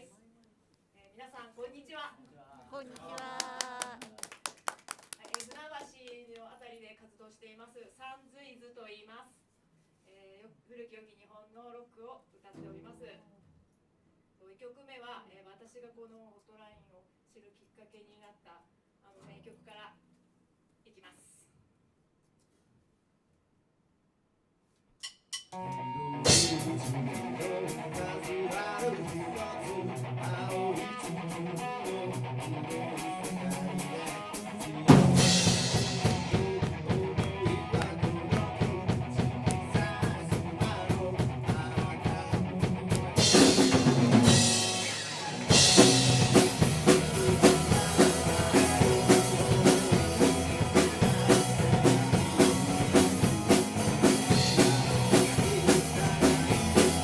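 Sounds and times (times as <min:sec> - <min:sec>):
light electric guitar intro: 0:25.6 - 0:57.0
live rock band playing: 0:25.6 - 0:57.0
steady ticking beat: 0:34.9 - 0:57.0.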